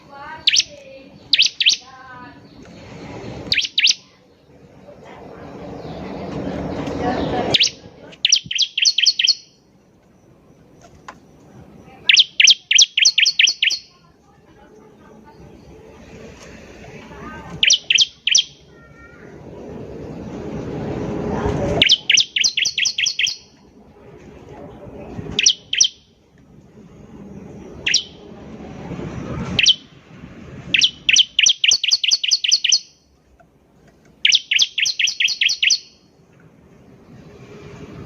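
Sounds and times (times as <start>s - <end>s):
bird high chipping notes: 0.1s - 2.6s, 3.4s - 4.2s, 7.3s - 9.7s, 11.8s - 14.0s, 17.6s - 19.3s, 21.8s - 23.6s, 29.5s - 30.0s, 30.6s - 33.2s, 34.2s - 36.1s.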